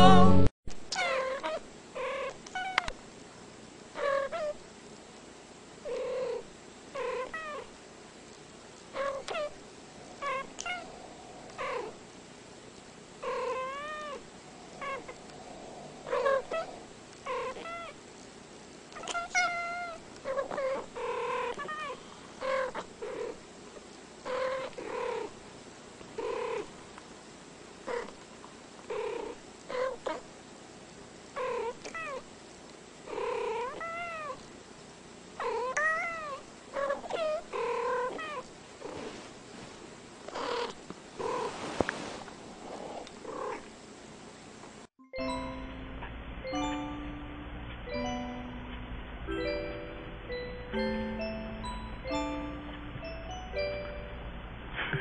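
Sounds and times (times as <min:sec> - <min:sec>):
cat meowing: 0:01.0 - 0:02.9, 0:14.8 - 0:15.2, 0:16.0 - 0:18.0, 0:19.0 - 0:22.9.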